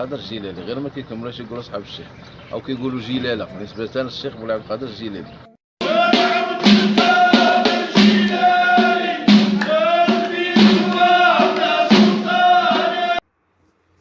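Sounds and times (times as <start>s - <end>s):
hand percussion beats: 5.8s - 13.1s
group singing a chant: 5.8s - 13.2s.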